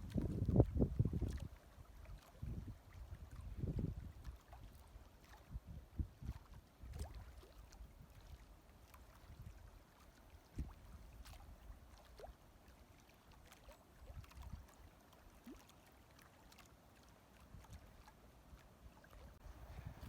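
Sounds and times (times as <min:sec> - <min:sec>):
low wind rumble on microphone: 0:00.0 - 0:04.6, 0:05.5 - 0:08.1, 0:19.4 - 0:20.0.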